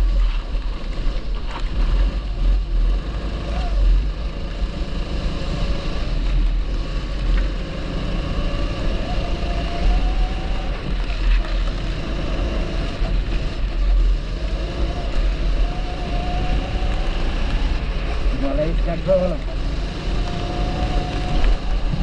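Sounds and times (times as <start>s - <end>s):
kart engine revving: 0.8s - 22.0s.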